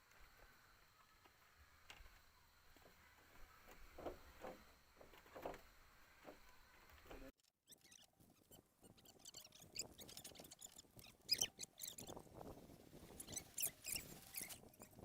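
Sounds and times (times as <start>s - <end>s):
small animals squeaking and chirping: 7.4s - 15.0s.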